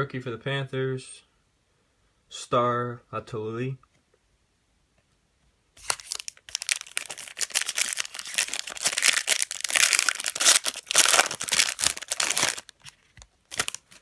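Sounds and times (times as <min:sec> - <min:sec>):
card pack wrapper tearing and crinkling: 0:05.8 - 0:14.0.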